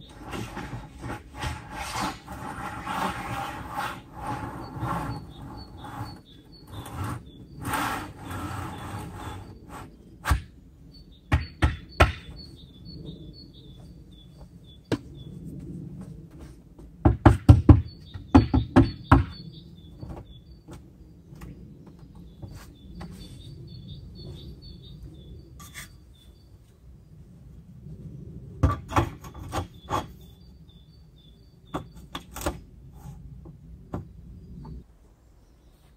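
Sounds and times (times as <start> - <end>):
birds chirping: 2.3 - 15.6, 17.6 - 26.6, 29.3 - 33.2.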